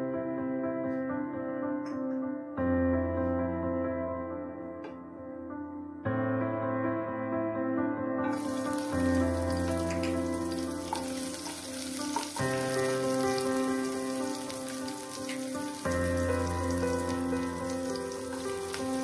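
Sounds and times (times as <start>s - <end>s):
slow keyboard chords music: 0.0s - 19.0s
ginger and chilli sizzling in oil: 8.3s - 19.0s.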